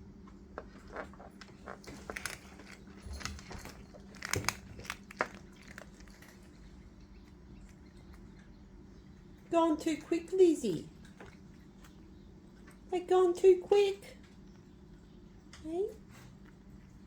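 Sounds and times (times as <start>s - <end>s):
cat crunching dry treats: 0.6s - 8.4s.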